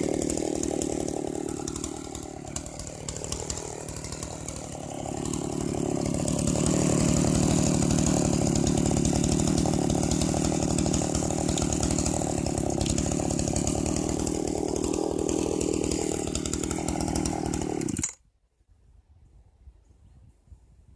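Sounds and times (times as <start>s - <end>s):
chainsaw engine at high revs: 0.0s - 18.2s.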